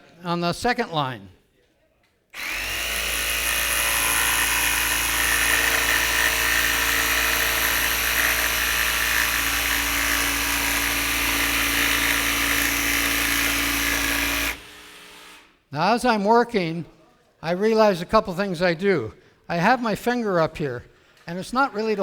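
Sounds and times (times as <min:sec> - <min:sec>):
electric jigsaw cutting: 0:02.4 - 0:15.5.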